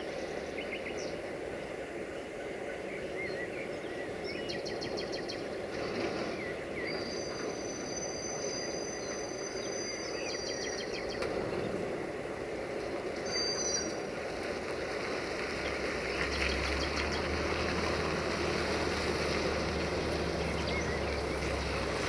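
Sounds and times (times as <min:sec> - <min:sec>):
distant freight train rumbling: 0:00.0 - 0:22.0
birds chirping: 0:02.0 - 0:14.4, 0:19.2 - 0:22.0.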